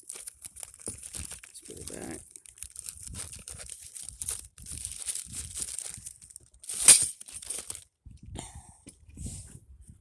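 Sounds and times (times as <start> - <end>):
packaging crinkling and rustling: 0.0 - 7.9.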